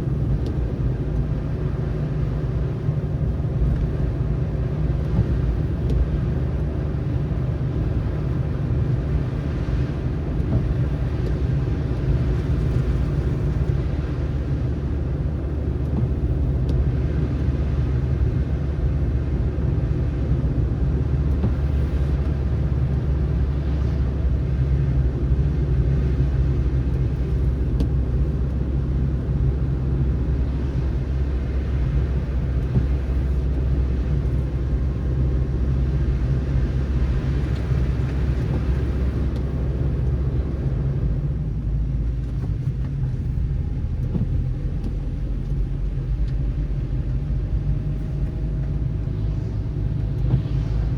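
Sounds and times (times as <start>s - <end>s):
car engine hum: 0.0s - 50.9s
tyre and road noise: 0.0s - 50.9s.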